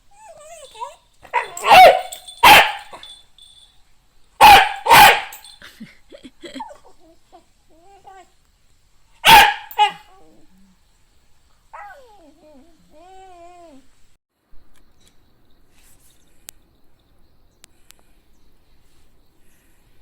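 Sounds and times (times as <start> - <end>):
faint high dog whines: 0.0 - 2.3, 6.6 - 8.4
dog barking: 1.3 - 3.1, 4.4 - 5.5, 9.2 - 10.1.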